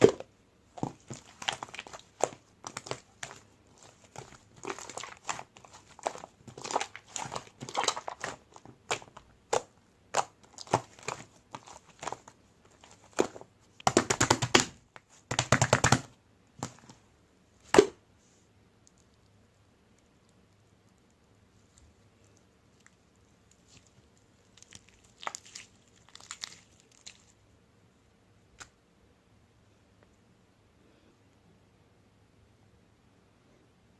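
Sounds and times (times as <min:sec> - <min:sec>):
rapid popping of slime: 0:00.0 - 0:16.9
slime squished by hand: 0:00.8 - 0:16.9, 0:22.7 - 0:27.4.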